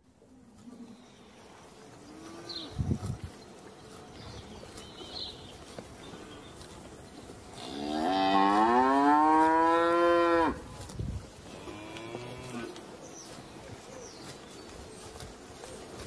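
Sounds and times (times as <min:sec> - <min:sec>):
cow mooing: 0:07.6 - 0:10.6, 0:11.5 - 0:12.8.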